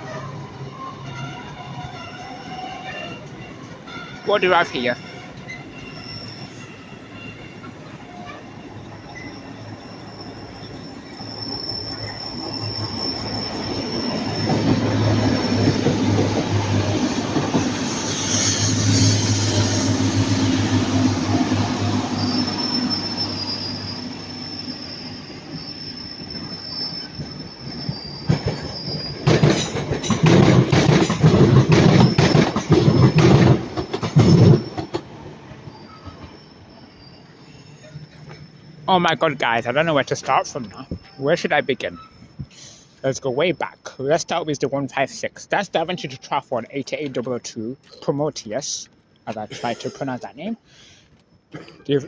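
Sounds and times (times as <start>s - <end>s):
low train rumble: 0.0s - 47.6s
train wheels squealing: 0.0s - 52.0s
loud irregular knocks and clatter: 29.2s - 35.0s.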